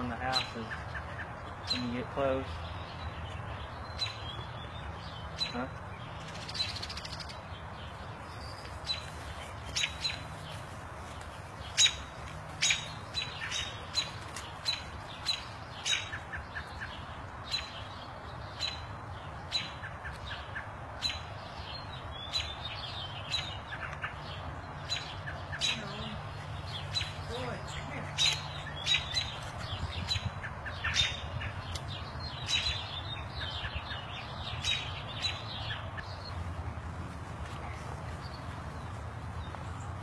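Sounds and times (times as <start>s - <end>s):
bird chirping: 0.0s - 36.9s.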